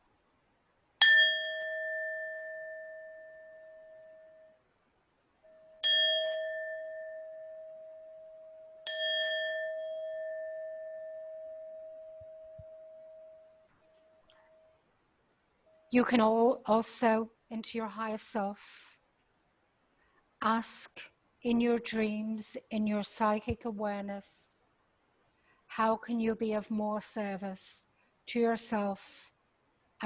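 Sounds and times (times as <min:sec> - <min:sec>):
singing bowl ringing: 0:01.0 - 0:04.7, 0:05.4 - 0:14.8.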